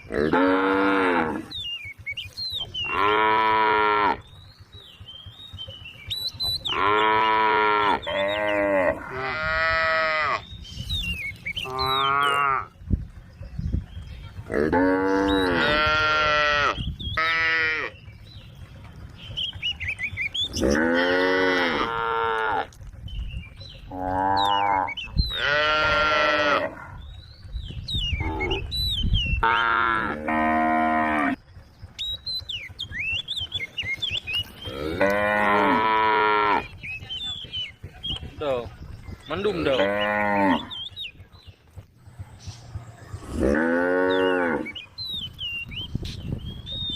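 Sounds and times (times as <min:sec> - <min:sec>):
cows mooing: 0:00.0 - 0:01.6, 0:02.6 - 0:04.3, 0:06.5 - 0:10.5, 0:11.5 - 0:12.8, 0:14.4 - 0:18.0, 0:20.3 - 0:22.8, 0:23.8 - 0:27.1, 0:28.1 - 0:28.8, 0:29.4 - 0:31.4, 0:33.9 - 0:36.8, 0:39.3 - 0:40.9, 0:43.0 - 0:45.0.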